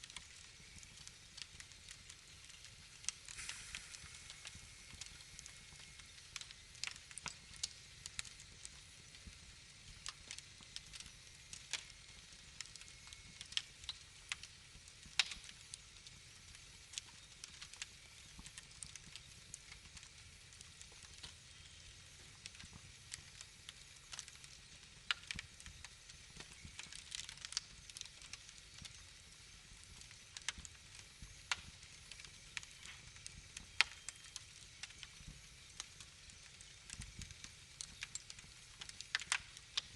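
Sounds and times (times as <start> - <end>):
hiss and rumble of flames: 0.0 - 39.9
wood fire crackling and popping: 0.0 - 39.9.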